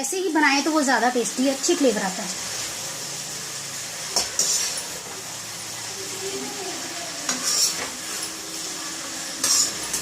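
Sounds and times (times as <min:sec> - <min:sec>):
vegetables sizzling in oil: 0:00.0 - 0:10.0
spoon scraping a pan: 0:04.1 - 0:05.1, 0:07.2 - 0:08.6, 0:09.3 - 0:10.0.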